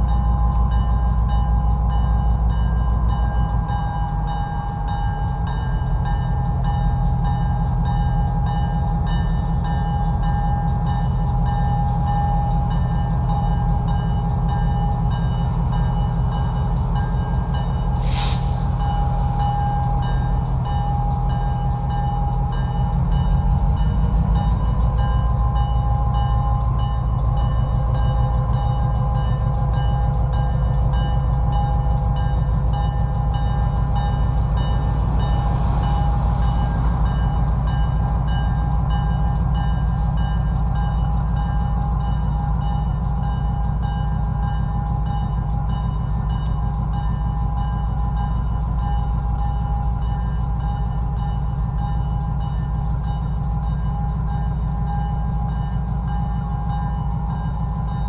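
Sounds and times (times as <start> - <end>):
train rumbling: 0.0 - 58.0
brief hiss: 18.0 - 19.8.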